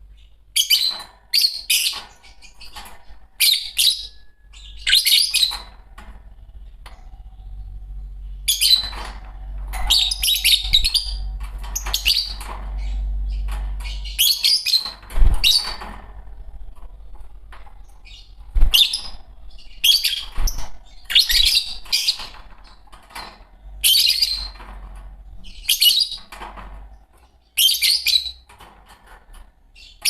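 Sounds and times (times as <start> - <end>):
lovebirds chirping shrilly: 0.1 - 5.8, 7.0 - 9.2, 9.8 - 15.9, 17.8 - 24.6, 27.3 - 28.5.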